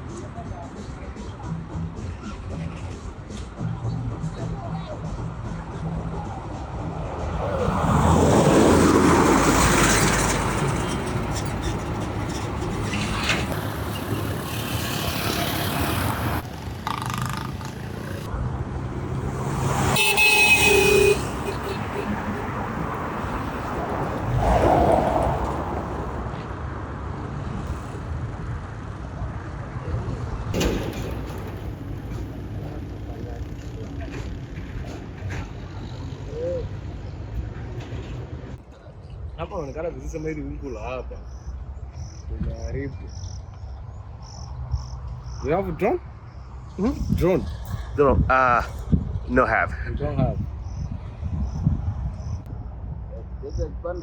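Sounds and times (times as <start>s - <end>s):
traffic rumble: 0.0s - 54.0s
vehicle passing close by: 6.7s - 38.6s.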